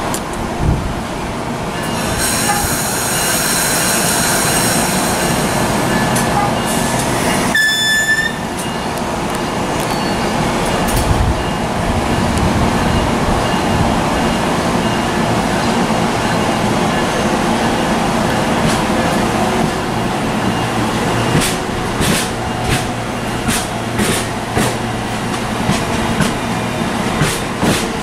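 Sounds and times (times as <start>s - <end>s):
train rumbling past on rails: 0.0s - 28.0s
high wheel squeal: 1.8s - 8.9s.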